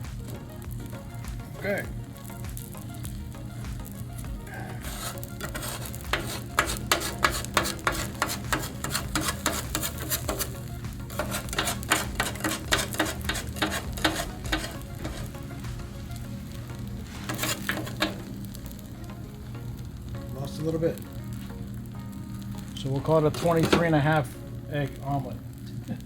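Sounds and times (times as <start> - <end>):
eggs sizzling on griddle: 0.0 - 26.0
metal spatula scraping and tapping: 4.8 - 15.6, 17.0 - 18.4, 23.3 - 23.9.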